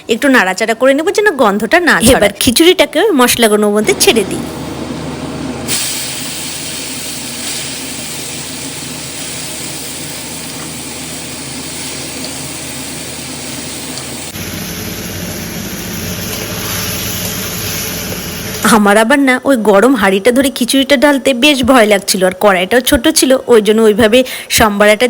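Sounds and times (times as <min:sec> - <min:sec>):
hot oil sizzling in a pan: 0:05.7 - 0:18.6.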